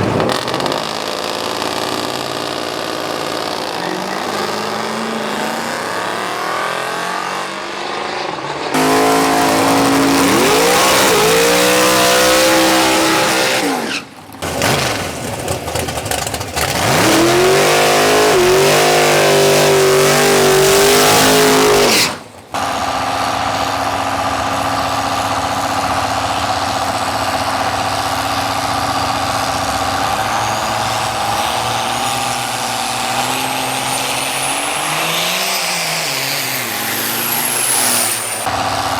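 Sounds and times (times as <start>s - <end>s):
drag racing engines accelerating: 0.0s - 38.9s
steady engine hum: 8.6s - 38.9s.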